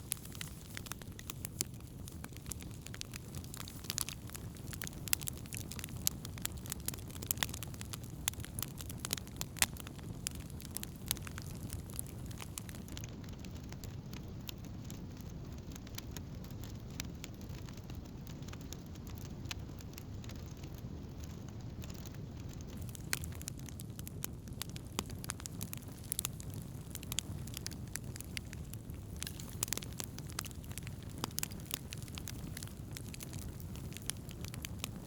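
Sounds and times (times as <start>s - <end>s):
low steady rumble: 0.0s - 6.4s
campfire crackling and popping: 0.0s - 35.0s.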